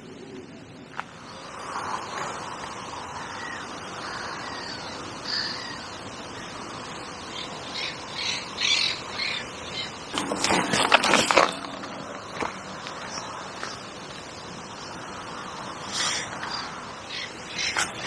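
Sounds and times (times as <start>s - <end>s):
birds calling: 0.9s - 18.0s.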